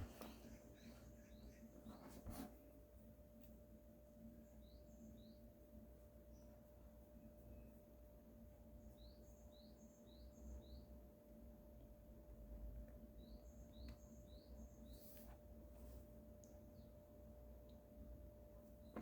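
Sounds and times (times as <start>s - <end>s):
faint high bird chirps: 0.0s - 2.5s, 4.4s - 5.6s, 8.7s - 11.1s, 13.0s - 15.3s
faint steady hum: 0.0s - 19.0s.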